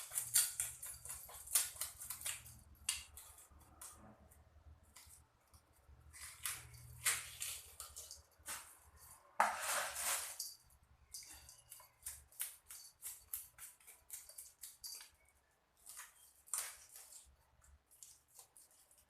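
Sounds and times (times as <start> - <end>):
knife scraping fish: 6.1 - 10.5.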